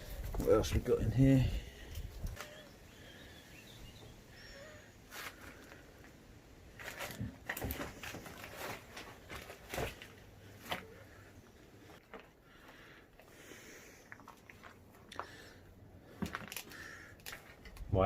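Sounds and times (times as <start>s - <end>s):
faint bird chirps: 2.3s - 5.1s
footsteps crunching on debris: 6.7s - 11.0s
rummaging through debris: 6.7s - 11.2s.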